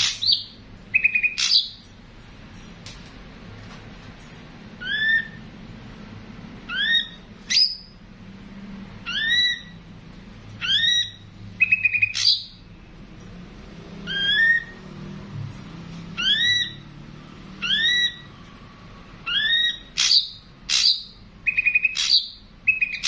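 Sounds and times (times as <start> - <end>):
bird whistled calls: 0.0 - 1.8, 4.8 - 5.4, 6.7 - 8.0, 9.0 - 9.8, 10.6 - 12.6, 14.1 - 14.8, 16.2 - 16.9, 17.6 - 18.3, 19.2 - 23.0.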